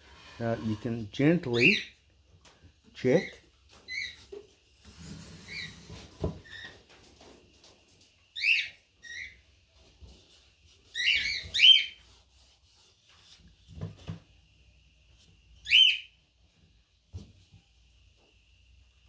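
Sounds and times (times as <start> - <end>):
bird chirping: 10.9 - 12.0, 15.6 - 16.2.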